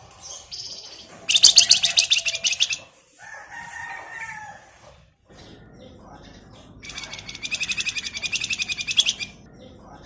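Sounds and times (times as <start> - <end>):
songbird singing: 0.0 - 2.9, 5.3 - 10.0.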